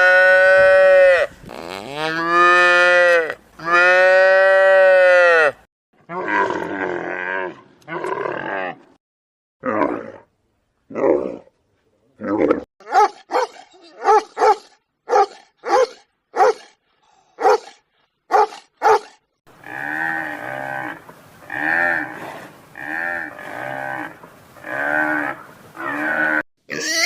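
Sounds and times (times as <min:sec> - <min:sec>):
drawn-out animal cries: 0:23.0 - 0:27.0.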